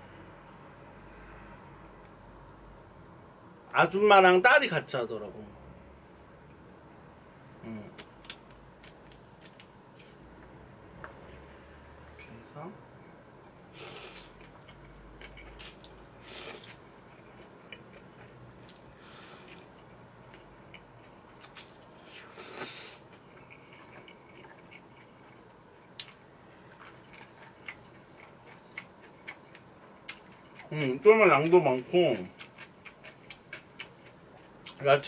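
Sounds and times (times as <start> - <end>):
chewing noodles: 14.1 - 30.9, 32.1 - 34.8.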